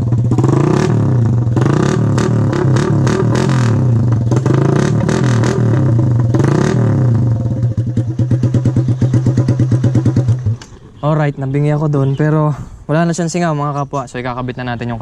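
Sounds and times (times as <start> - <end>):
motorcycle engine revving and idling: 0.0 - 11.0.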